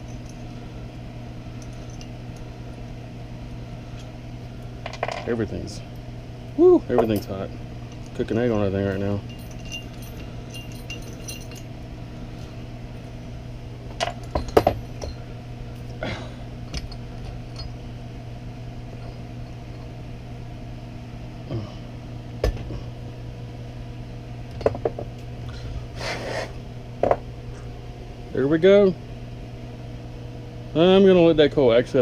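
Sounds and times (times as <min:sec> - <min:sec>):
steady low hum: 0:00.0 - 0:32.0
metal parts clinking: 0:08.9 - 0:11.7, 0:14.0 - 0:15.2.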